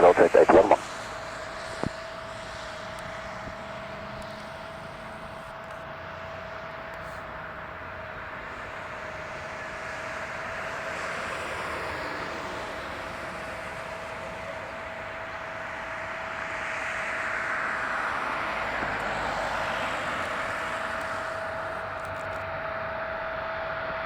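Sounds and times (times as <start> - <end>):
jet engine rushing: 0.0 - 0.8.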